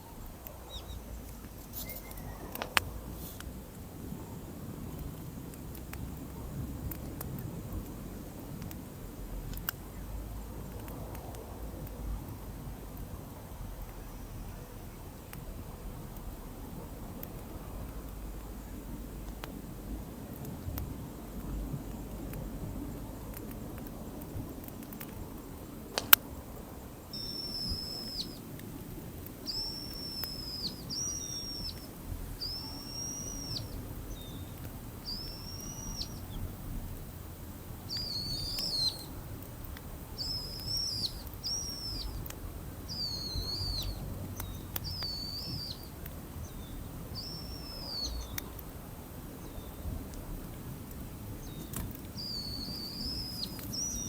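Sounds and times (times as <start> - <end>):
bird whistling calls: 0.0 - 2.8, 27.1 - 28.5, 29.4 - 36.5, 37.8 - 39.2, 40.1 - 42.2, 42.8 - 48.5, 51.4 - 54.0
low background noise: 0.0 - 54.0
sharp click: 25.9 - 26.2.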